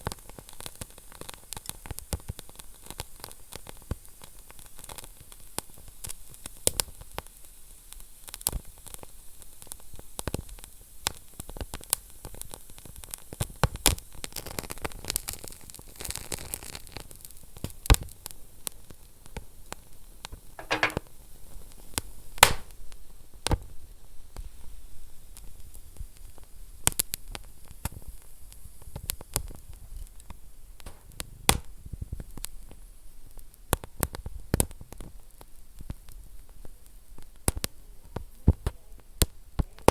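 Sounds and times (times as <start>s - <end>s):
wood fire crackling and popping: 21.9s - 22.8s, 25.4s - 39.9s.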